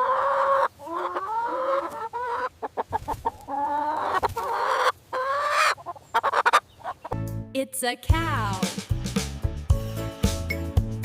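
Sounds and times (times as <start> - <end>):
chicken clucking and squawking: 0.0 - 7.2.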